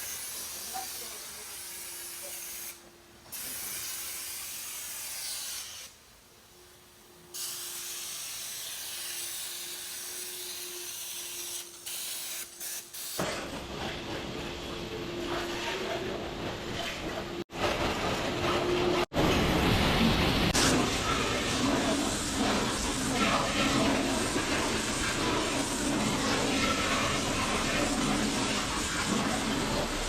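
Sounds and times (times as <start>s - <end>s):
pressure washer spraying water: 0.0s - 6.0s, 7.3s - 13.2s.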